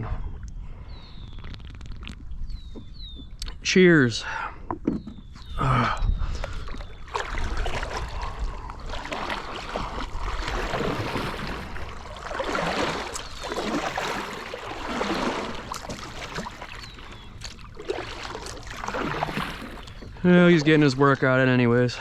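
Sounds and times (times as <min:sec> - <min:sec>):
water splashing around a kayak: 0:06.1 - 0:22.0.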